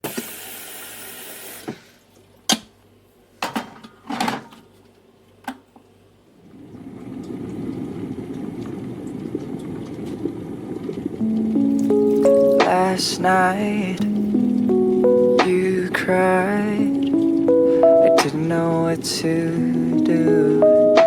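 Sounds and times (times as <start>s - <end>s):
dishes clinking and knocking: 3.4s - 4.6s
tap running: 6.5s - 20.4s.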